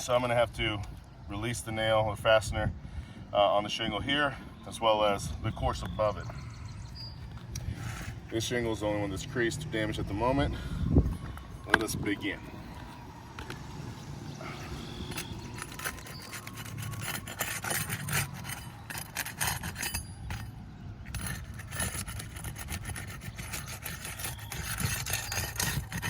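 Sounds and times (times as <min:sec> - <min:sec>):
roof shingles being scraped: 0:14.4 - 0:26.0.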